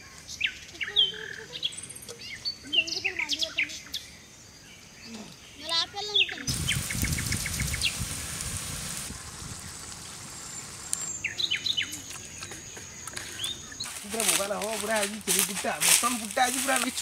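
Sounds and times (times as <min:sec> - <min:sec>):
bird chirping: 0:00.0 - 0:08.0, 0:09.6 - 0:15.3
noisy hiss: 0:06.4 - 0:13.0, 0:13.6 - 0:17.0.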